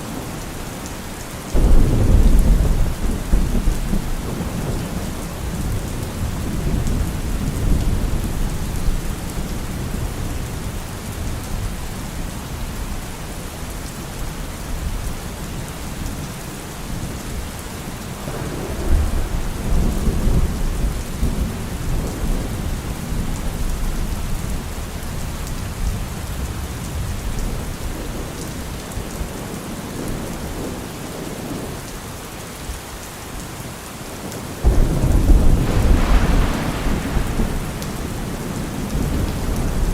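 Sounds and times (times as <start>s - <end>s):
heavy rain falling: 0.0s - 39.9s
thunder rumbling: 1.5s - 12.3s, 18.2s - 24.4s, 34.6s - 39.9s.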